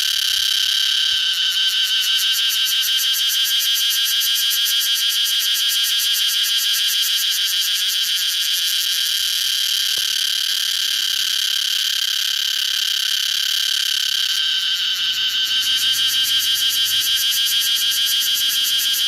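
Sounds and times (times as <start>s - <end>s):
cicadas buzzing: 0.0s - 19.0s.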